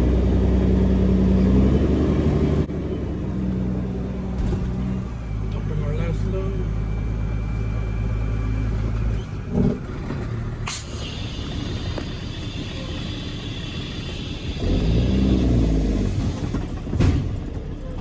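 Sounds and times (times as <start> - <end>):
truck diesel engine idling: 5.0 - 18.0.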